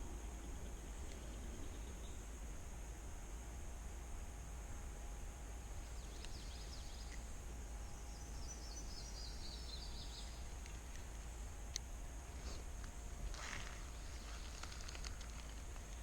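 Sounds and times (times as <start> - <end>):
faint steady hiss: 0.0 - 16.0
small bird singing: 7.9 - 10.6.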